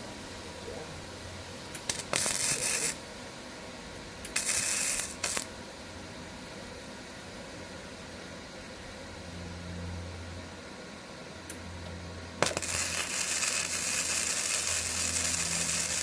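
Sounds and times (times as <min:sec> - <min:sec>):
welder click: 0:01.7 - 0:03.0
welding arc crackling hiss: 0:01.7 - 0:03.1, 0:04.0 - 0:05.6, 0:12.4 - 0:16.0.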